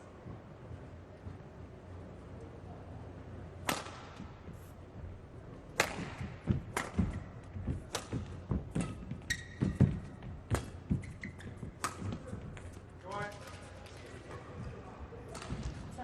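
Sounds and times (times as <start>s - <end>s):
rackets hitting shuttlecock: 3.6s - 4.4s, 5.7s - 14.7s, 15.3s - 15.9s
footsteps thudding on court: 6.0s - 12.9s
shoe squeak: 8.7s - 12.3s.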